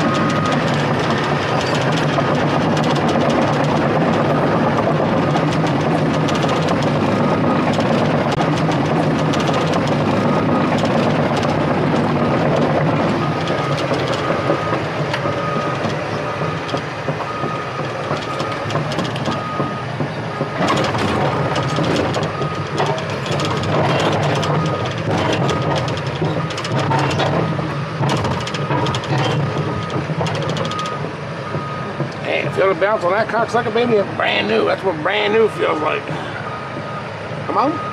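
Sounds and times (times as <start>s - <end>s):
backup alarm beeping: 0.0s - 1.7s, 9.3s - 26.6s, 28.3s - 37.9s
metallic clanking and rattling: 0.0s - 32.7s
heavy diesel engine running: 0.0s - 37.9s.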